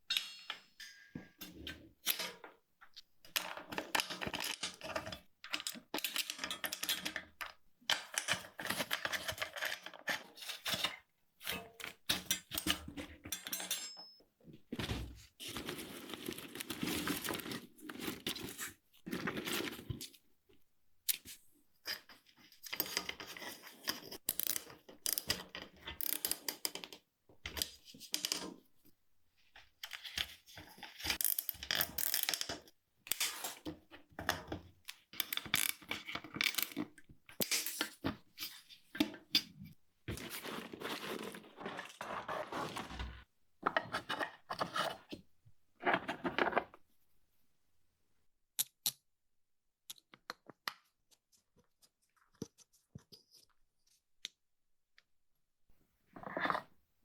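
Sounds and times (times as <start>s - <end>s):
scraping of bicycle parts: 40.1s - 43.3s.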